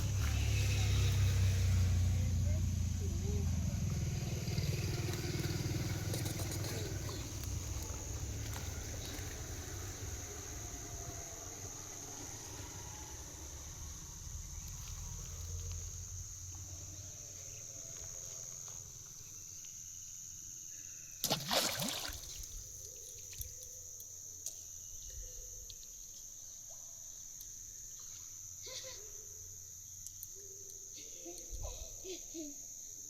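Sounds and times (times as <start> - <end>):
insects droning: 0.0 - 33.0
splash in water: 21.2 - 22.5.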